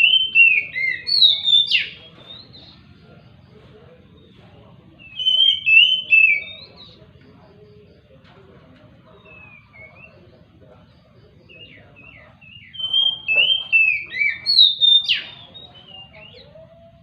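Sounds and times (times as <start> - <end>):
bird singing whistled notes: 0.0 - 2.8, 4.2 - 7.0, 9.1 - 17.0.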